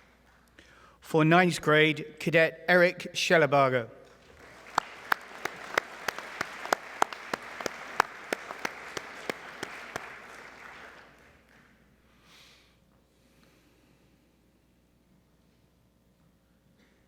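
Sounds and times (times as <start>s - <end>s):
sharp claps close by: 4.0s - 11.8s
audience applauding: 4.2s - 11.8s.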